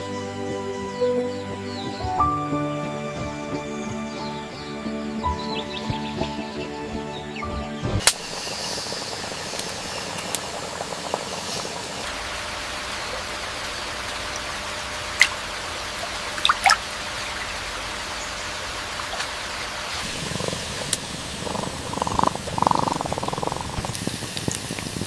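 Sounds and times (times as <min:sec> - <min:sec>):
river water flowing: 0:08.1 - 0:25.0
short sharp splashes: 0:16.3 - 0:16.9.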